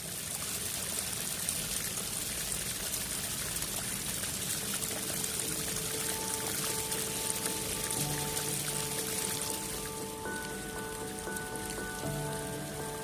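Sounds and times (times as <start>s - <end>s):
heavy rain pouring: 0.0s - 13.0s
faint held musical notes: 5.0s - 13.0s.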